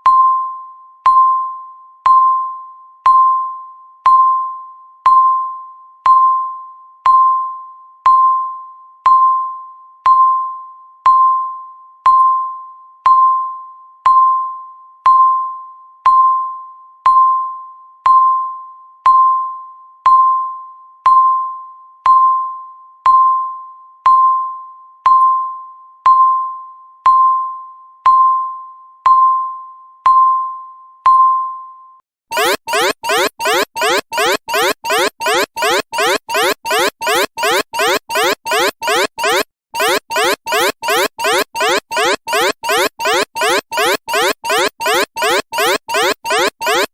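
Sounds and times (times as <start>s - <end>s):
timer beeps: 32.3s - 46.9s.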